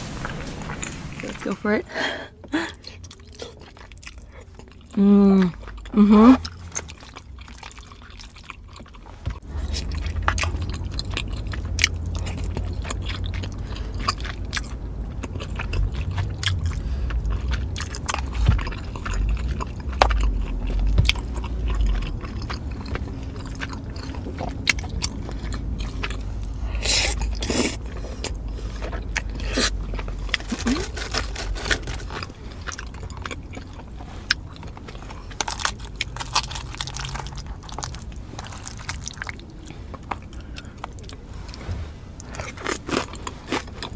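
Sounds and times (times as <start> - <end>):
low rumble of jaw working: 0.0 - 43.9
chewing and crunching food: 0.2 - 43.9.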